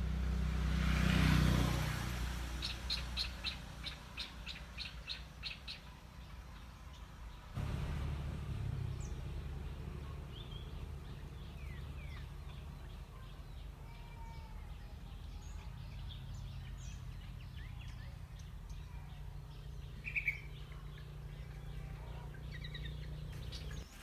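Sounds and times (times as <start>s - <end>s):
small birds chirping: 0.9s - 24.0s
steady low rumble: 7.6s - 13.0s
whistled bird call: 20.0s - 20.8s.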